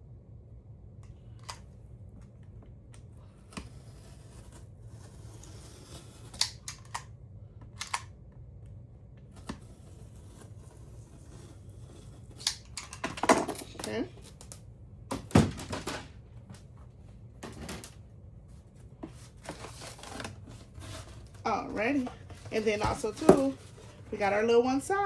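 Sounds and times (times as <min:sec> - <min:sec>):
blade cutting foam board: 0:03.3 - 0:07.0, 0:09.3 - 0:13.9, 0:19.1 - 0:24.7.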